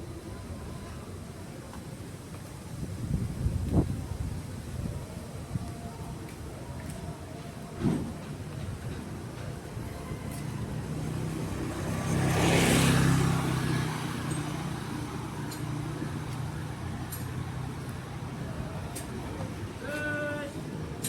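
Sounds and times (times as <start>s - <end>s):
low engine hum: 2.6s - 21.0s
vehicle passing on wet road: 10.7s - 15.4s.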